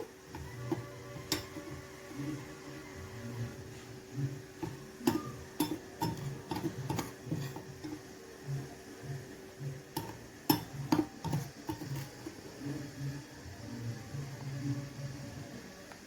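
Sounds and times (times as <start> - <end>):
utensils tapping a bowl: 0.0 - 1.8, 4.6 - 8.1, 9.9 - 12.5.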